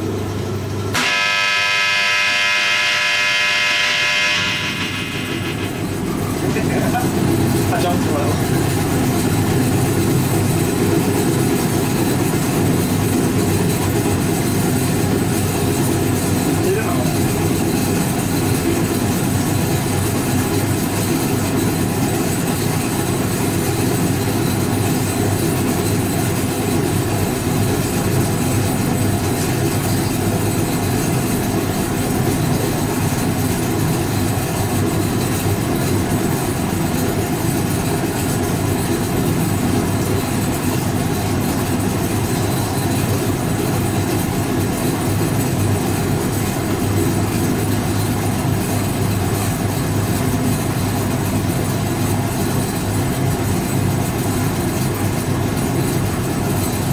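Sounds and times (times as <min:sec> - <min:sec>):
washing machine running: 0:00.0 - 0:56.9.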